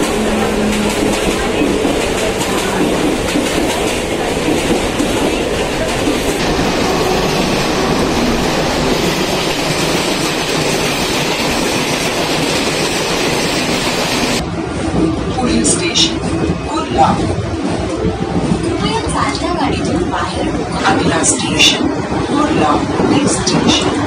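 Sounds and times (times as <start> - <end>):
clickety-clack over rail joints: 0.0 - 6.4
train wheels rumbling on track: 0.0 - 24.0.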